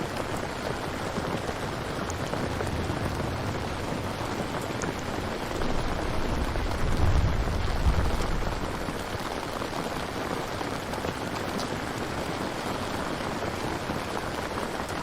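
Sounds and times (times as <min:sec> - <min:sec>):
falling rain hiss: 0:00.0 - 0:15.0
low rumble: 0:01.7 - 0:09.9.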